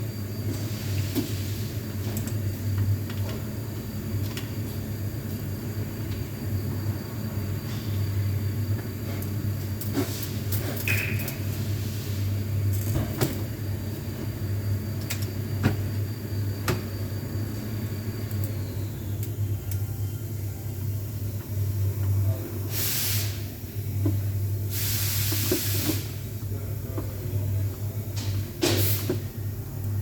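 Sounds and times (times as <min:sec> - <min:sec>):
air hissing bursts: 0:22.6 - 0:23.5, 0:24.6 - 0:26.3, 0:28.6 - 0:29.3.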